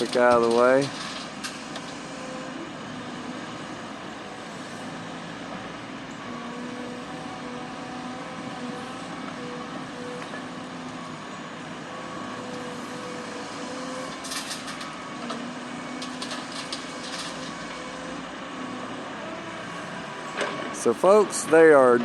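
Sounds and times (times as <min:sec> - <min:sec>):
diesel truck engines running: 0:00.0 - 0:22.0
light clanks and rattles: 0:14.1 - 0:15.4, 0:16.0 - 0:17.8, 0:20.3 - 0:20.9.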